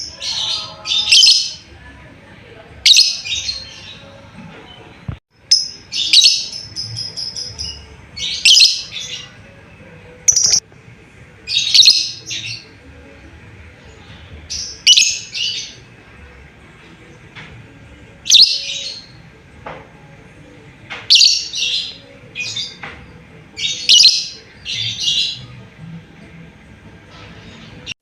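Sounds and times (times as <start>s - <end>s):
lovebird shrill chirps: 10.3s - 10.6s.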